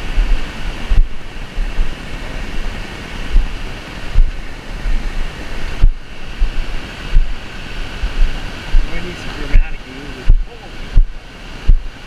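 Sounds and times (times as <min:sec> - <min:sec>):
waterfall roaring: 0:00.0 - 0:12.0
wind buffeting microphone: 0:00.0 - 0:12.0.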